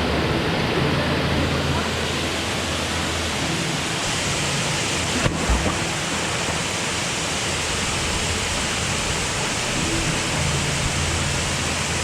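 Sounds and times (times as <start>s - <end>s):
waterfall rushing into pool: 0.0s - 12.0s
low thump: 5.2s - 6.0s.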